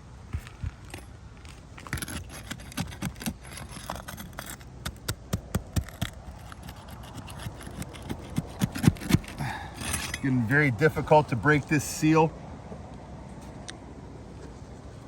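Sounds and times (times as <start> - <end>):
roof shingles scraping and cracking: 0.4 - 10.0.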